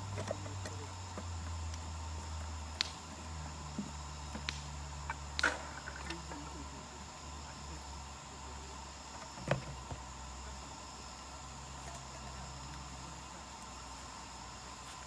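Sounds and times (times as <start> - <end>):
fire popping and snapping: 0.0 - 6.6
campfire crackling: 0.0 - 15.0.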